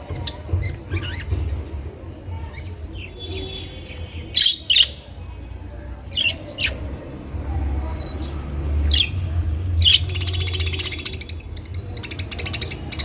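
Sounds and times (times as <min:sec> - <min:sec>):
budgerigars chirping and squawking: 0:03.0 - 0:05.1, 0:06.1 - 0:07.0, 0:08.0 - 0:09.2, 0:09.8 - 0:13.0.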